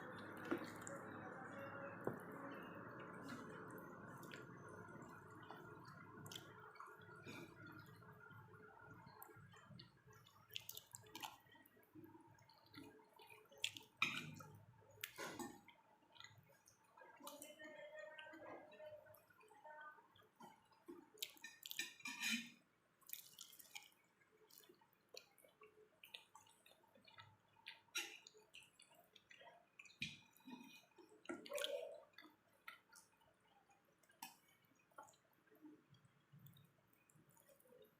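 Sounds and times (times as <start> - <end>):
food crackles: 1.9 - 17.6
wet chewing and mouth clicks: 2.6 - 17.5, 20.1 - 22.3, 23.0 - 37.9.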